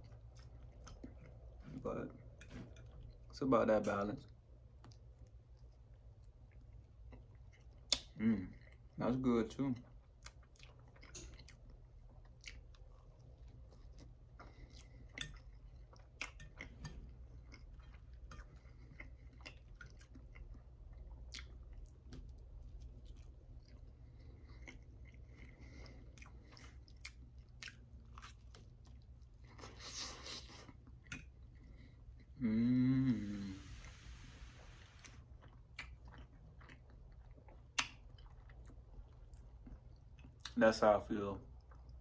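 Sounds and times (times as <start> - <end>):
person chewing soft food: 0.0 - 3.4, 4.2 - 9.0, 9.6 - 40.6, 41.4 - 42.0
faint low hum: 0.0 - 42.0.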